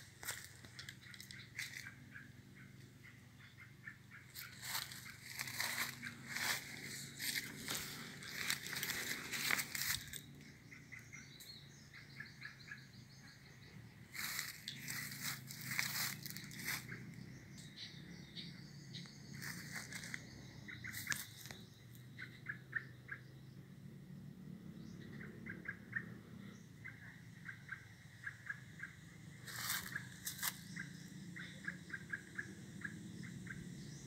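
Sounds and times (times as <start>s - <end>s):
footsteps crunching dry leaves: 0.1s - 1.9s, 4.3s - 10.2s, 14.1s - 17.0s, 19.4s - 21.6s, 29.5s - 30.7s.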